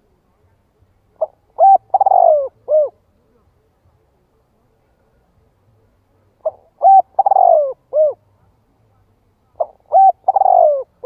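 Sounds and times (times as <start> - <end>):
dove cooing: 1.2 - 3.0, 6.4 - 8.2, 9.6 - 11.0.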